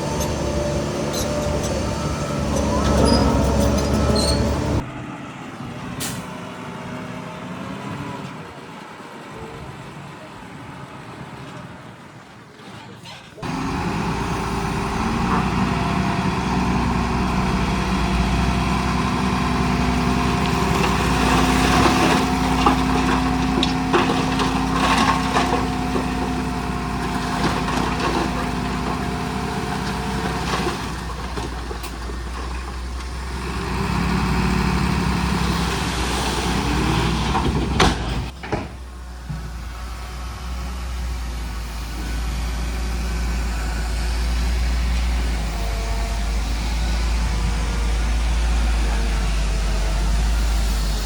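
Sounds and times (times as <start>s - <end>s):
heavy diesel engine running: 0.0s - 51.0s
knocks and clatter: 20.4s - 33.1s, 36.8s - 39.6s.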